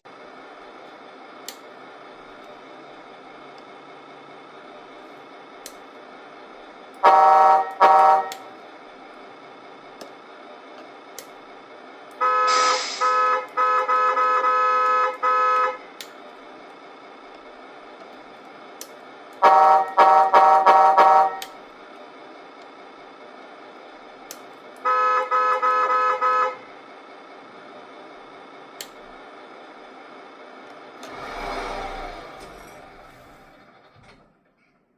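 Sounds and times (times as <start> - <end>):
truck horn blasts: 7.0 - 8.5, 12.2 - 15.8, 19.4 - 21.6, 24.8 - 26.6.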